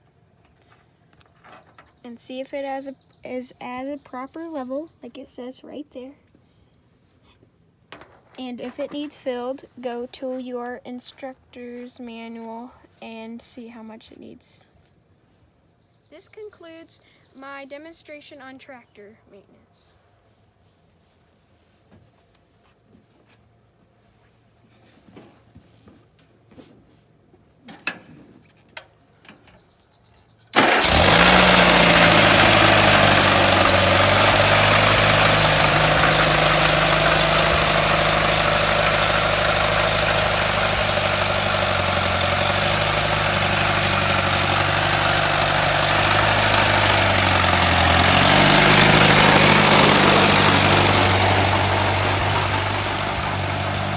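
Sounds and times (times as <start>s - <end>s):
tractor engine running: 30.5s - 53.9s.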